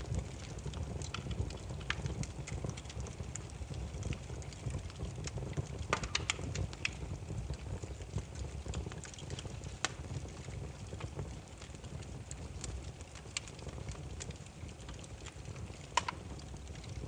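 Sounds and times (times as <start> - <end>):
firewood crackling and popping: 0.0 - 17.0.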